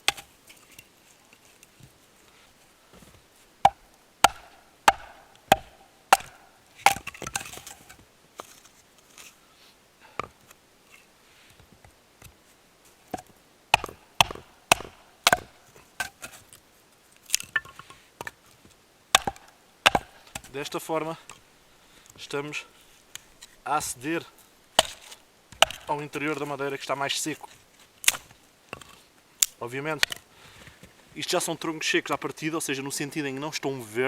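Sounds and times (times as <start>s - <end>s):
logs splitting with wooden knocks: 0.0s - 0.3s, 2.9s - 9.2s, 13.1s - 16.5s, 19.1s - 20.6s, 24.7s - 26.0s, 28.0s - 30.2s.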